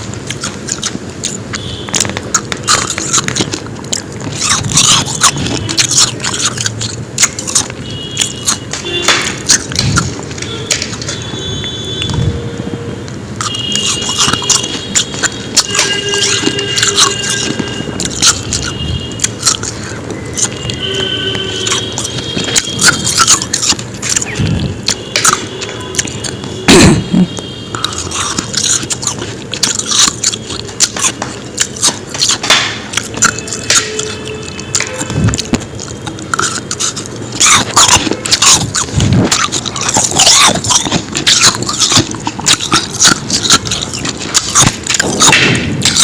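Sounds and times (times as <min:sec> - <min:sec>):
chewing crunchy ice: 0:00.0 - 0:12.4, 0:13.4 - 0:46.0.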